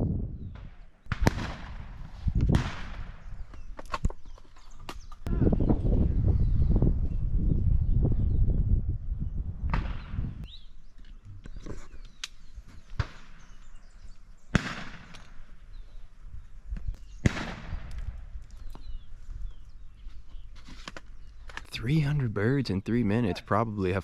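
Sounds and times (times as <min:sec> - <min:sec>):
distant shotgun shots: 0:00.6 - 0:03.3, 0:14.5 - 0:15.4, 0:17.2 - 0:17.9.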